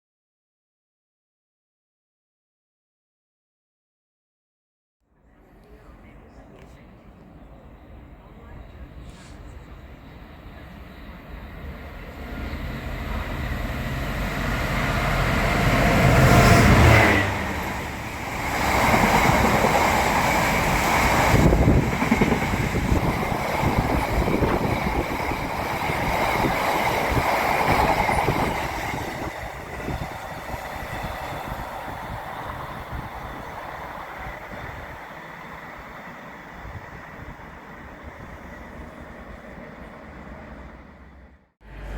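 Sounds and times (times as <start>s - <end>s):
diesel train engine: 5.2s - 41.9s
train wheels clattering on rails: 12.4s - 34.8s.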